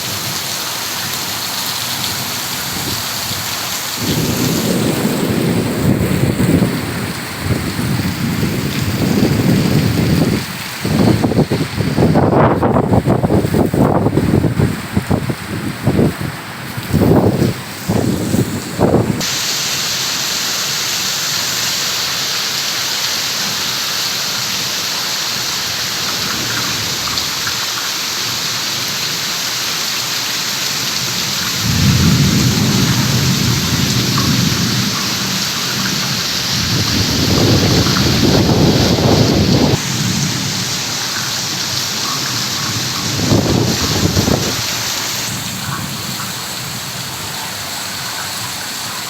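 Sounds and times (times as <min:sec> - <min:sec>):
heavy rain falling: 0:00.0 - 0:49.0
low wind gusts: 0:02.6 - 0:19.4, 0:31.1 - 0:47.7.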